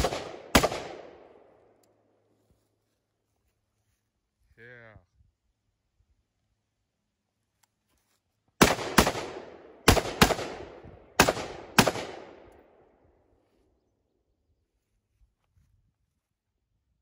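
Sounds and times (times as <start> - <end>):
gunshots with echo: 0.0 - 1.5, 8.6 - 12.5.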